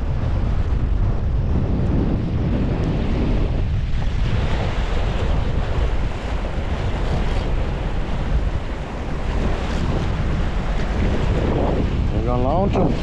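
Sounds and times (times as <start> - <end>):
waves washing against shore: 0.0 - 13.0
wind buffeting microphone: 0.0 - 13.0.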